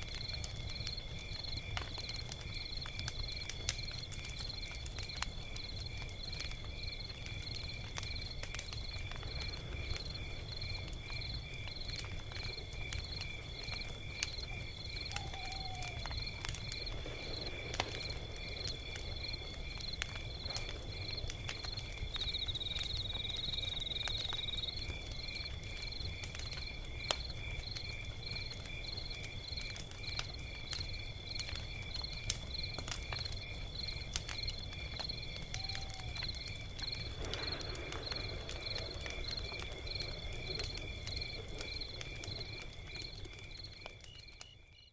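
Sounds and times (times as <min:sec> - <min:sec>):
crickets chirping: 0:00.0 - 0:44.9
log fire crackling and popping: 0:00.0 - 0:44.9.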